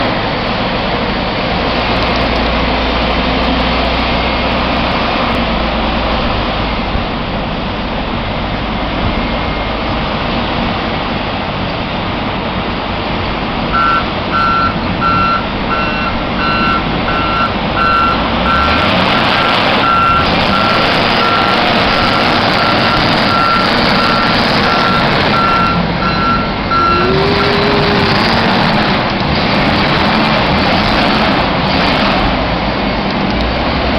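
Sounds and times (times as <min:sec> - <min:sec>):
vehicle engine running: 0:00.0 - 0:33.9
reversing alarm beeping: 0:13.7 - 0:28.4.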